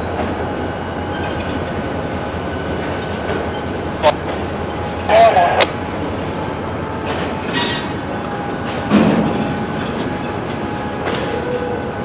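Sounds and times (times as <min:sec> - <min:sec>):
train wheels clacking on rails: 0:07.0 - 0:11.8
metallic ringing squeal: 0:07.5 - 0:08.2.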